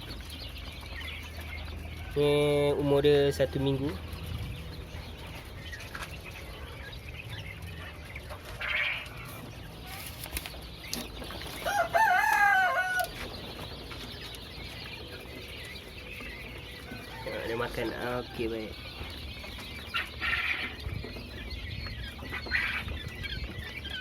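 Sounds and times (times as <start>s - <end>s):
fowl crowing: 8.5s - 9.4s, 11.6s - 13.3s, 16.3s - 18.7s.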